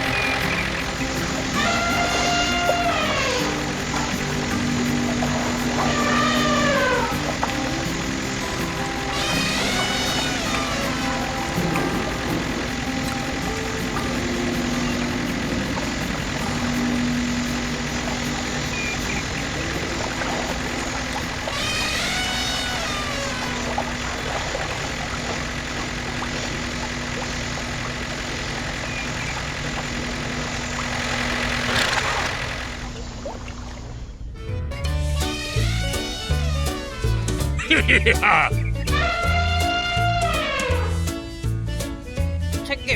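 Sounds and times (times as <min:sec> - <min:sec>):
small tractor motor running: 0:00.0 - 0:33.6.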